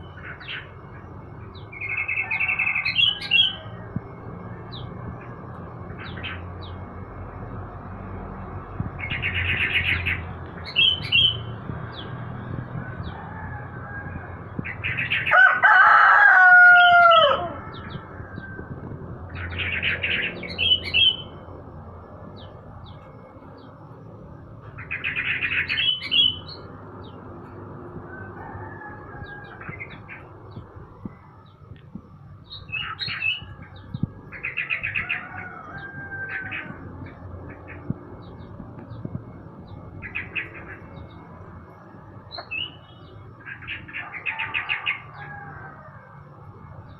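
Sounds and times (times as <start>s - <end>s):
songbirds singing trilled phrases: 0.0s - 7.3s, 8.0s - 13.2s, 14.3s - 15.4s, 16.7s - 28.4s, 29.0s - 45.3s
rooster crowing: 1.8s - 3.9s, 12.8s - 14.6s, 15.2s - 19.0s, 27.9s - 30.2s, 34.5s - 37.0s, 43.9s - 46.4s.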